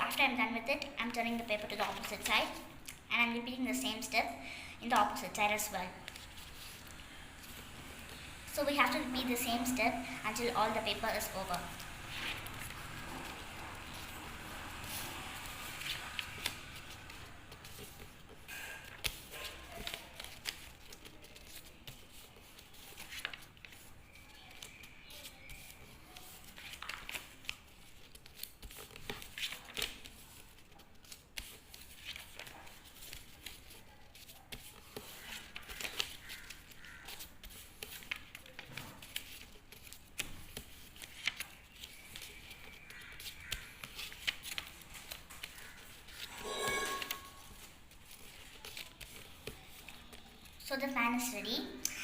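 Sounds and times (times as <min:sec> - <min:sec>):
paper crinkling and creasing: 0:01.0 - 0:02.7, 0:04.9 - 0:50.6.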